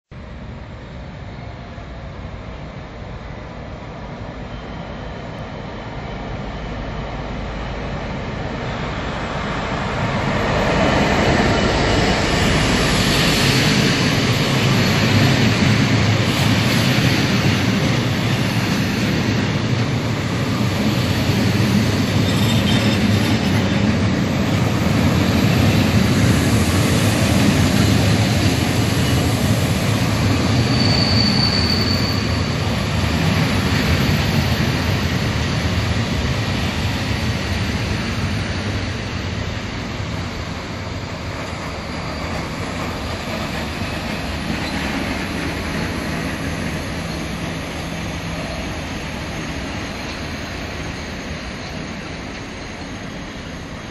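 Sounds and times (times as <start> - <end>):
diesel locomotive passing: 0.2 - 53.9
high wheel squeal: 30.2 - 32.7.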